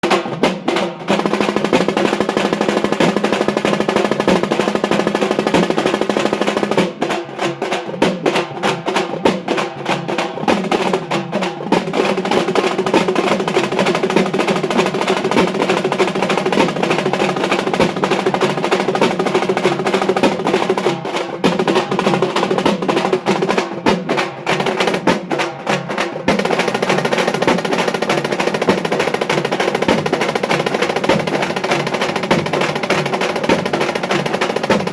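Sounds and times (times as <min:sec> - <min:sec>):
frame drums played with sticks: 0:00.0 - 0:34.9.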